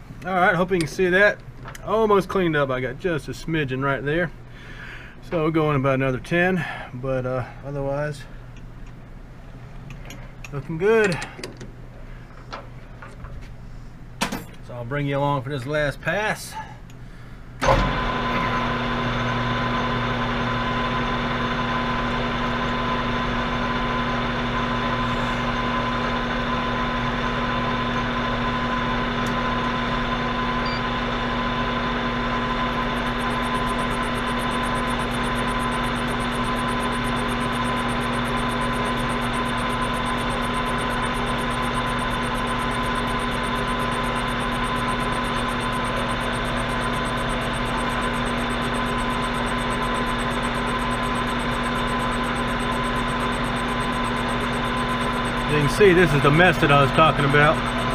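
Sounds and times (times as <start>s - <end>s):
metal shaper motor humming: 17.6s - 57.9s.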